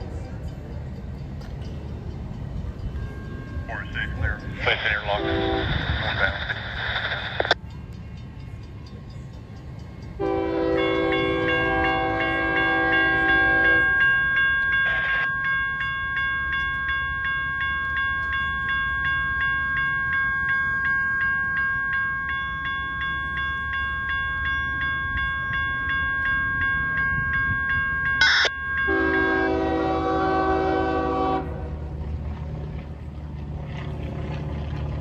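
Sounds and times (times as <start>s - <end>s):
crossing bell ringing: 0.0s - 32.1s
passing train rumble: 0.0s - 35.0s
train horn blast: 5.2s - 5.8s, 10.2s - 14.0s, 28.9s - 31.8s.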